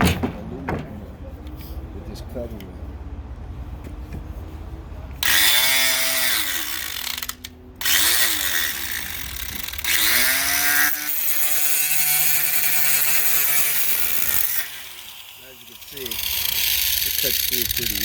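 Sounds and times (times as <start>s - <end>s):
angle grinder cutting metal: 5.2s - 18.0s.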